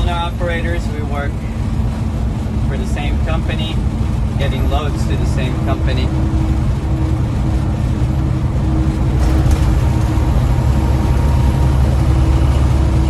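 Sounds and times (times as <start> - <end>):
truck diesel engine droning: 0.0 - 13.0.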